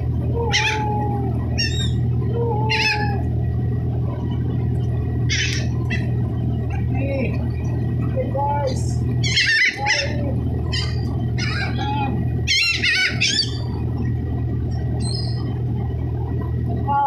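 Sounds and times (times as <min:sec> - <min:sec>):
low machinery hum: 0:00.0 - 0:17.0
seagulls squawking: 0:00.4 - 0:03.3, 0:05.3 - 0:06.2, 0:09.2 - 0:13.8, 0:15.0 - 0:15.6.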